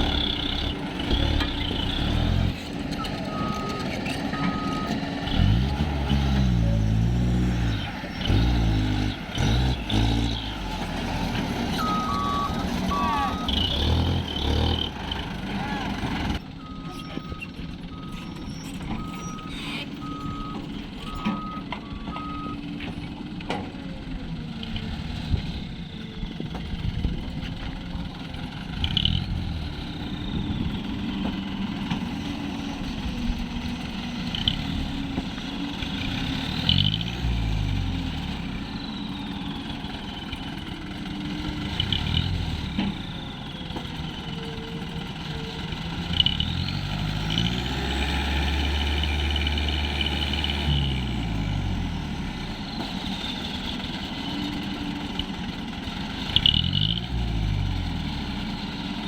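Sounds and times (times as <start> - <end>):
reversing alarm beeping: 0.0 - 10.6, 11.7 - 15.0, 16.4 - 22.6, 29.6 - 31.5
truck engine revving: 0.0 - 59.0.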